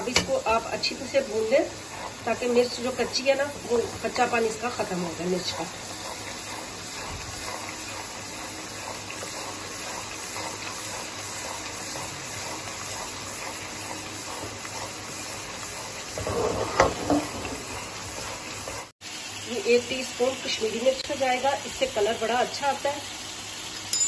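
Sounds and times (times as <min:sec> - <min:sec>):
spatula knocking on pan: 0:00.0 - 0:00.5
spatula scraping pan: 0:00.0 - 0:18.9
spices sizzling in fat: 0:00.0 - 0:24.0.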